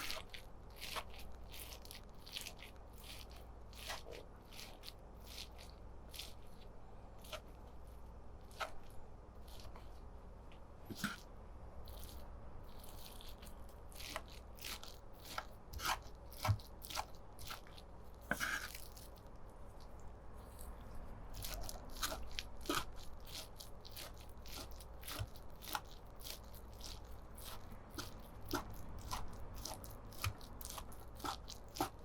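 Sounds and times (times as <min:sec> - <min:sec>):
rustling scrape: 0:11.9 - 0:32.0.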